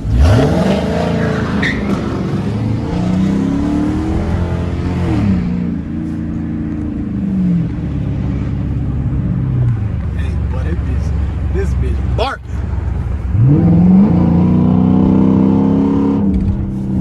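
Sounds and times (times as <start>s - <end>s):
car engine barking while accelerating: 0.0s - 6.2s, 7.0s - 17.0s.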